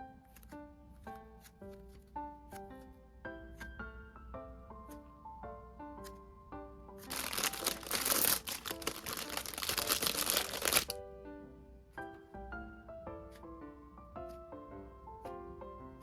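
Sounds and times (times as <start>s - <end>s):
background music with plucked notes: 0.0s - 16.0s
squishy toy crinkling: 7.0s - 11.0s.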